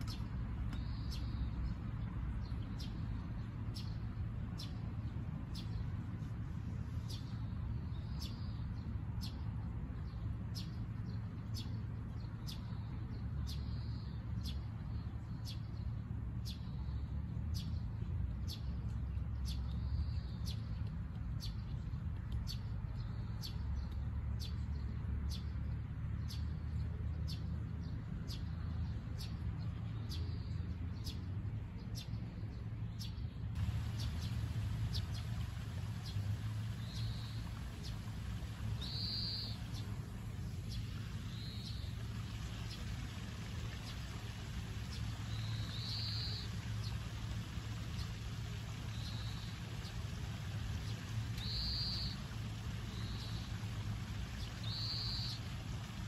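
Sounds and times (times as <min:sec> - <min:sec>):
birds chirping: 0:33.0 - 0:56.0.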